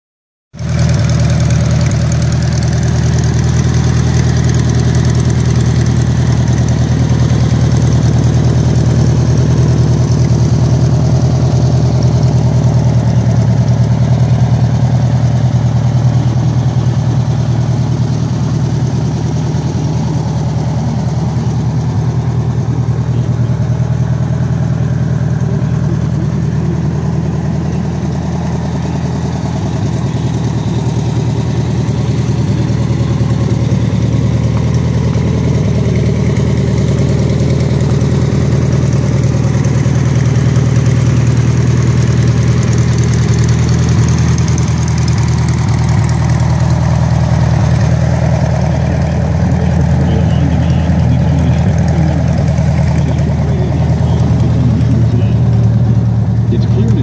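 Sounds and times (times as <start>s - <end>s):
car engine idling: 0.5s - 57.0s.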